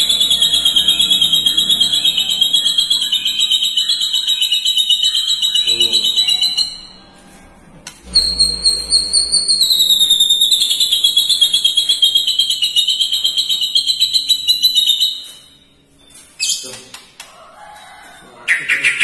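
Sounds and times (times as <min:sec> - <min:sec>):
bird chattering trill: 0:00.0 - 0:07.0, 0:08.1 - 0:15.3.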